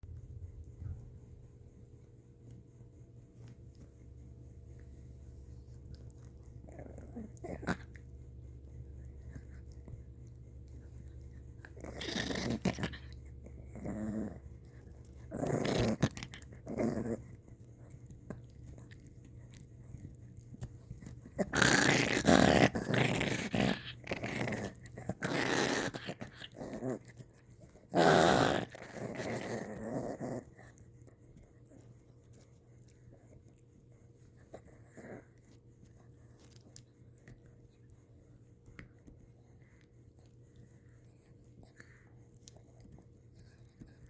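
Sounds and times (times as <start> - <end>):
dog growling: 5.9 - 8.2, 10.7 - 17.4, 21.1 - 30.7.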